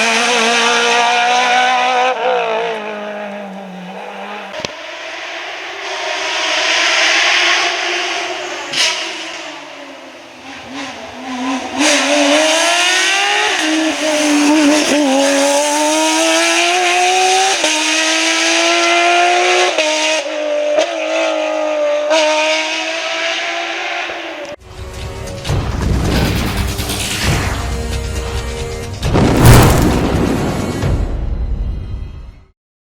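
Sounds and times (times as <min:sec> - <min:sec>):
car engine accelerating hard: 0:00.0 - 0:09.6, 0:10.6 - 0:24.0.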